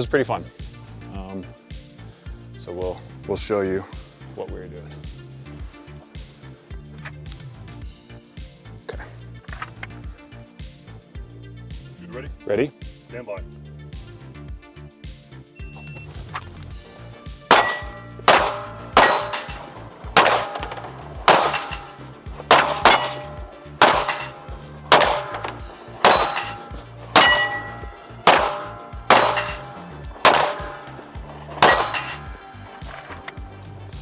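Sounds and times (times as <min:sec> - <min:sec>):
ring of struck steel plates: 0:17.5 - 0:32.4
pistol shots: 0:17.5 - 0:33.2.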